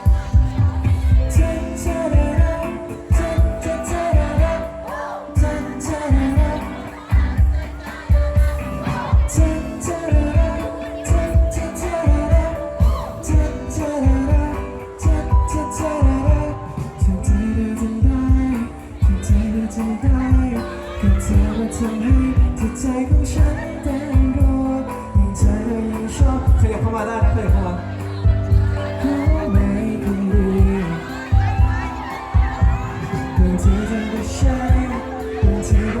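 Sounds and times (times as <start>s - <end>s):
kick drum beat: 0.0s - 1.6s, 5.4s - 14.6s, 15.3s - 23.6s, 25.2s - 36.0s
live pop band playing: 0.0s - 36.0s
sustained lead melody: 0.0s - 36.0s.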